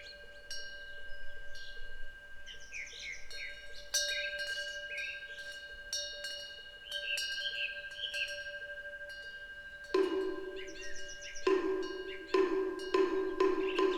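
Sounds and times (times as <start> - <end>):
songbirds chirping: 0.0 - 5.8, 9.9 - 13.9
wind bell ringing: 0.0 - 13.9.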